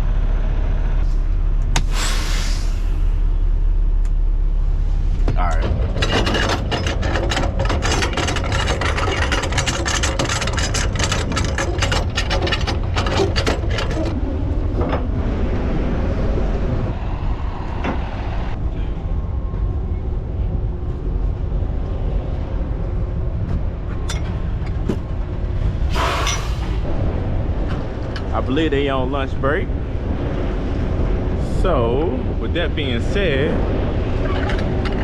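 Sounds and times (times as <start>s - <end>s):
rapid clatter of clicks: 5.6s - 14.2s, 34.1s - 35.0s.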